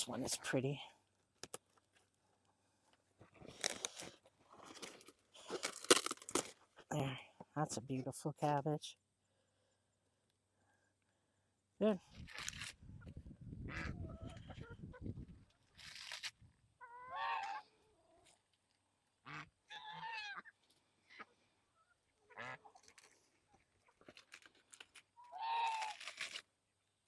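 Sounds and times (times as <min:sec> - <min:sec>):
rustle: 0:12.0 - 0:12.9, 0:15.3 - 0:26.5.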